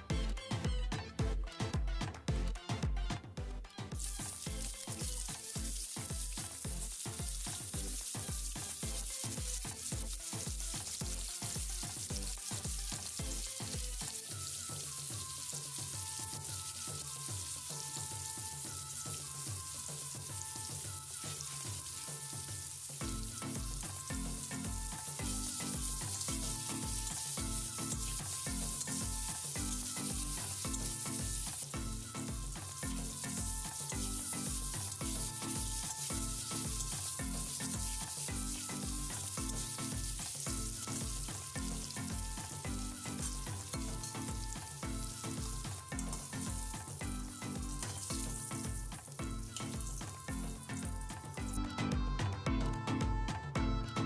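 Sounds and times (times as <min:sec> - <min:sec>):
background music with a beat: 0:00.0 - 0:54.0
potatoes frying in hot oil: 0:03.8 - 0:51.6
metal spatula stirring in a wok: 0:04.0 - 0:31.7.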